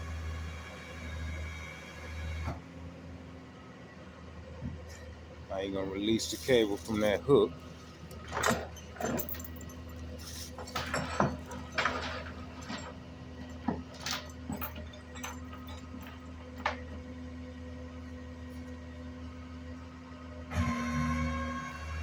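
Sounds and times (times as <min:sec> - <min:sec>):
tow truck engine running: 0:00.0 - 0:22.0
metal clanks and knocks: 0:08.1 - 0:17.1.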